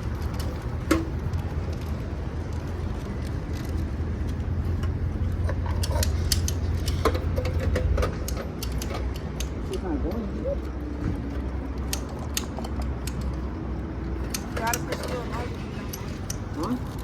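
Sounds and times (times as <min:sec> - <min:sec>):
low engine rumble: 0:00.0 - 0:17.0
sharp clicks: 0:08.1 - 0:09.8, 0:11.8 - 0:13.4, 0:14.2 - 0:15.2.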